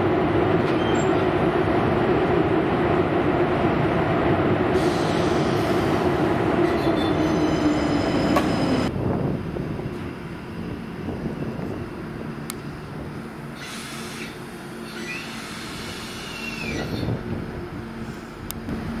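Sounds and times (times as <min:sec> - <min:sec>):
train wheels rumbling on rail: 0:00.0 - 0:19.0
faint high wheel squeal: 0:13.6 - 0:17.1.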